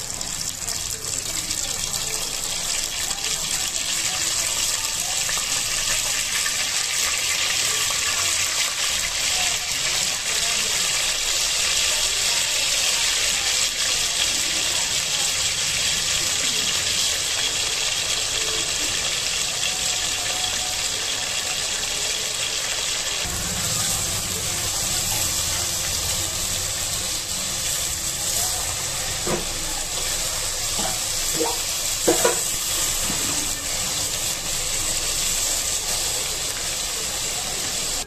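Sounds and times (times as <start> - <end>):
chicken frying in hot oil: 0.0 - 38.0
spoon knocking against pot: 30.8 - 32.4.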